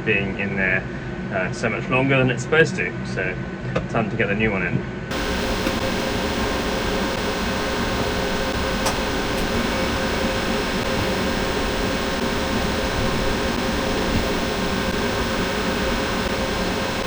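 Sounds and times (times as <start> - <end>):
mechanical hum and hiss: 5.1 - 17.0.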